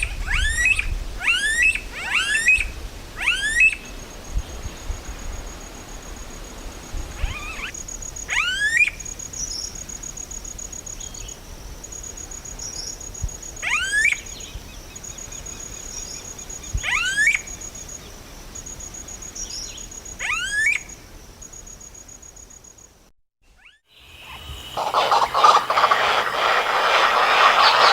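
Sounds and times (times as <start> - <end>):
insect pulsing trill: 23.6 - 27.9
bird sharply rising call: 24.0 - 27.9.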